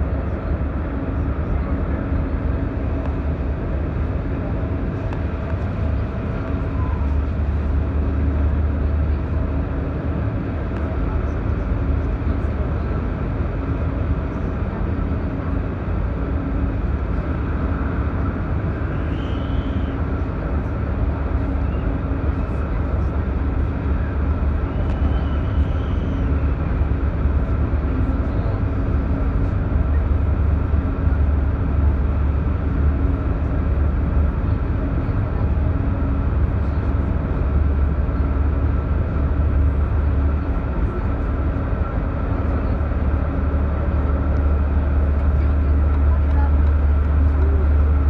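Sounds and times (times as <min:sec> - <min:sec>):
train wheels rumbling: 0:16.4 - 0:48.0.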